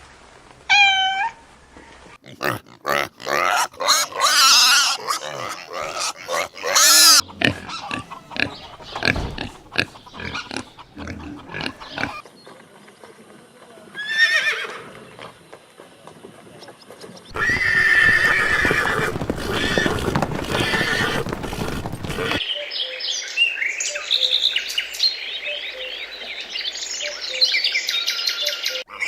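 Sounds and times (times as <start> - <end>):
horse whinnying: 14.0 - 14.9, 17.3 - 22.4.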